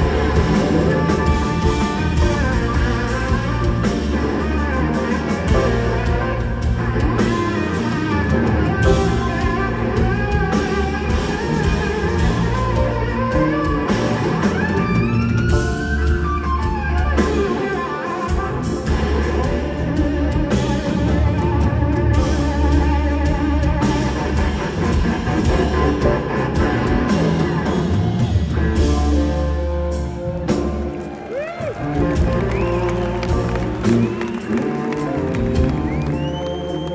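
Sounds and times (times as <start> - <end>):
bass: 0.0 - 36.9
drums: 0.0 - 36.9
electric slide guitar: 0.0 - 36.9.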